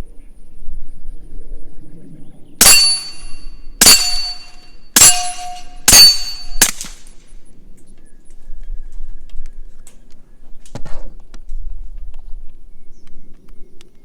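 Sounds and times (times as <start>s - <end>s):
steel target clanging: 2.6s - 7.1s
suppressed pistol shots: 5.8s - 7.1s.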